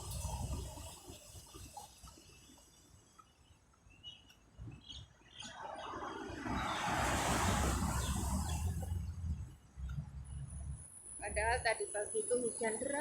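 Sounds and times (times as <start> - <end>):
bird chirps: 3.2 - 6.8
passing road vehicle: 5.3 - 11.6.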